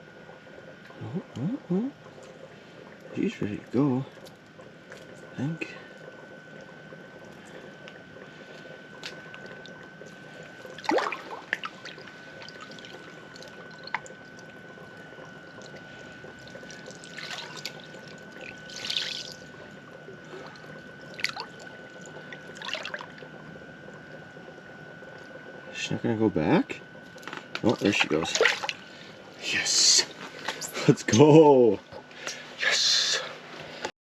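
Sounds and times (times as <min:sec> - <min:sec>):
water splashing and sloshing: 0:06.1 - 0:24.1, 0:27.2 - 0:29.4.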